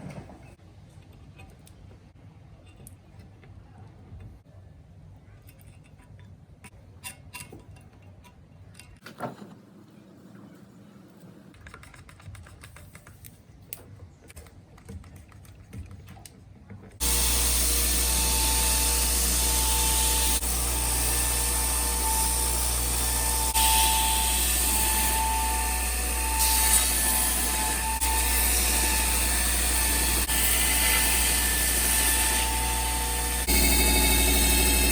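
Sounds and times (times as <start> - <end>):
loud steady machine noise: 32.7 - 34.9.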